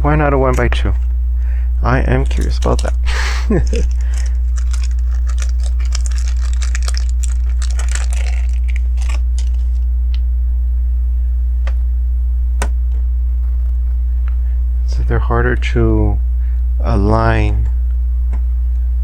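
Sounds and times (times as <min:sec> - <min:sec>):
low electrical hum: 0:00.0 - 0:19.0
plastic pieces rattling and clicking: 0:02.1 - 0:09.8
plastic pieces pressed on clicking: 0:02.2 - 0:09.8.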